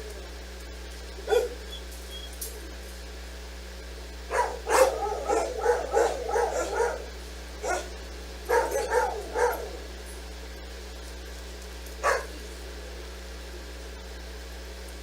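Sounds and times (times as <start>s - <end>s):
dog barking: 1.2s - 1.6s, 4.3s - 10.0s, 12.0s - 12.4s.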